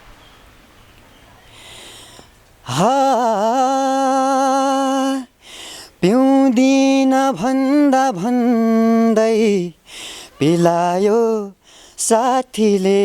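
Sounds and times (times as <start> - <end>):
man breathing in: 1.5 - 2.4, 5.4 - 6.0, 9.8 - 10.4, 11.6 - 12.0
man singing long note: 2.7 - 5.3.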